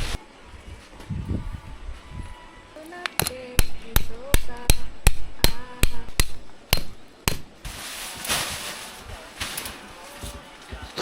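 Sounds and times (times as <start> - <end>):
hammer striking metal: 3.2 - 7.5.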